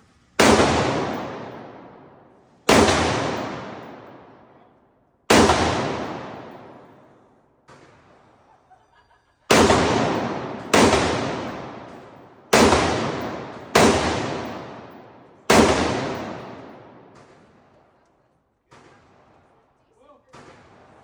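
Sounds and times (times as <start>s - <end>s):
gunshots with echo: 0.4s - 4.6s, 5.3s - 7.1s, 9.5s - 17.7s, 20.3s - 21.0s.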